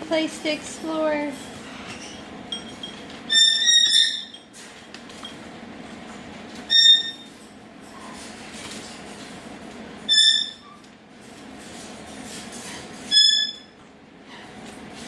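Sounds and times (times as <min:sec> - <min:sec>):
parrots squeaky calls: 0:03.3 - 0:04.4, 0:06.7 - 0:07.3, 0:10.1 - 0:10.6.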